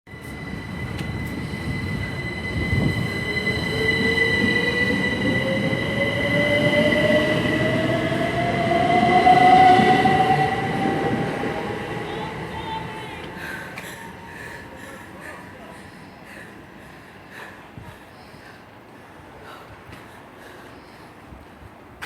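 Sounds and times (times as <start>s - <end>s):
steady high tone: 0.1s - 14.9s
train wheels rumbling: 0.1s - 18.1s.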